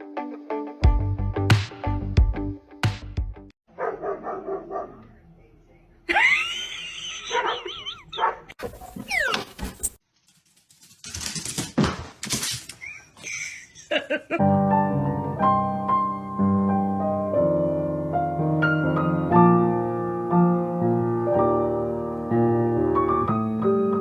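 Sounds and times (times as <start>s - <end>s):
piano music: 14.4s - 24.0s.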